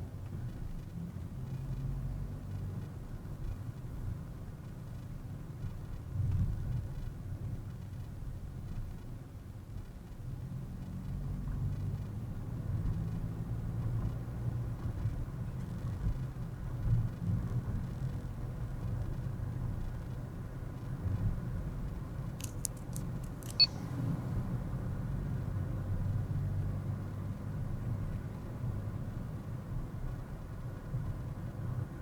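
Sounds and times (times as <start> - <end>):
car engine and road noise: 0.0 - 32.0
sharp clicks: 22.4 - 23.8.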